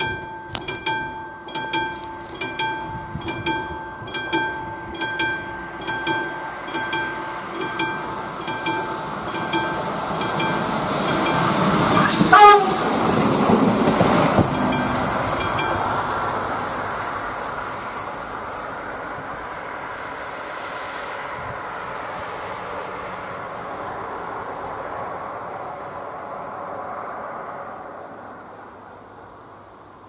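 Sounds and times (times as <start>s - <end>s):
level crossing bell: 0.0s - 11.6s
wheels clicking over rail joints: 0.0s - 19.8s
diesel railcar passing: 0.0s - 30.0s
train horn: 11.6s - 13.2s.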